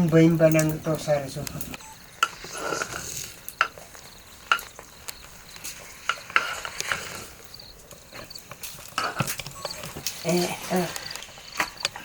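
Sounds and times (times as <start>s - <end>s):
faint sizzle: 0.0s - 12.0s
spoon scraping pot: 2.2s - 4.8s, 5.5s - 7.4s, 8.1s - 12.0s.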